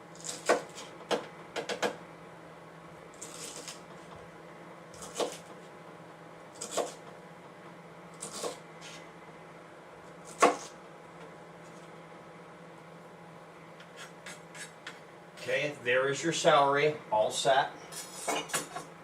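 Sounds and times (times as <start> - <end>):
knife chopping celery on a board: 0.2 - 2.0, 5.0 - 5.5, 6.6 - 7.0, 8.2 - 9.0, 10.2 - 10.8, 13.8 - 15.0.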